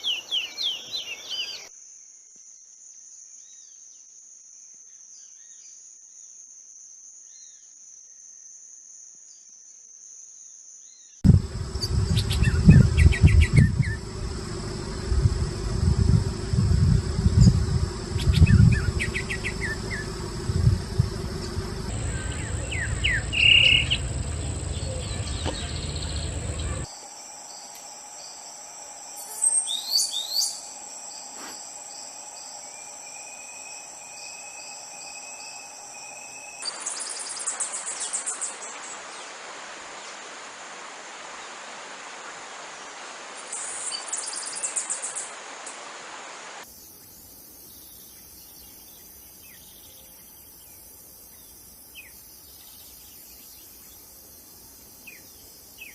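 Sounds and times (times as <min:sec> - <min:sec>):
high pulsing insect trills: 0:11.2 - 0:38.8, 0:46.6 - 0:55.9
steady high insect buzz: 0:11.2 - 0:38.8, 0:43.6 - 0:55.9
birds calling: 0:11.3 - 0:27.0.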